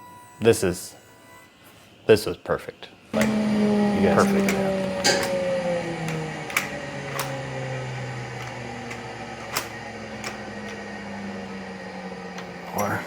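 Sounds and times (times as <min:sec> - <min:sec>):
power tool motor winding down: 0:03.1 - 0:13.0
sharp clicks and knocks: 0:04.2 - 0:05.4.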